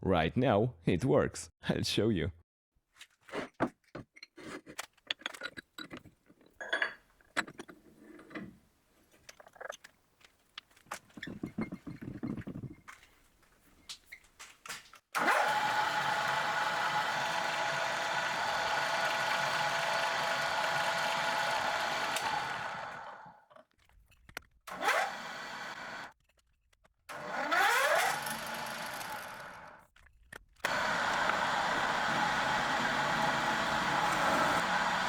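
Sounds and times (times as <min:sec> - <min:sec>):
drill press motor running: 0:15.2 - 0:23.4, 0:24.7 - 0:26.1, 0:27.1 - 0:29.8, 0:30.7 - 0:35.0
motor spin-up whine: 0:30.7 - 0:35.0.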